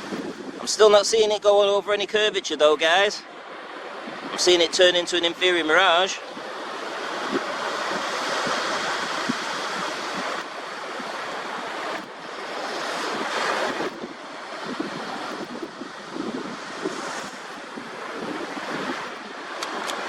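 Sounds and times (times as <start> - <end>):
wind buffeting microphone: 0.0 - 1.5, 3.4 - 5.2, 6.2 - 20.0
sea waves washing ashore: 0.0 - 20.0.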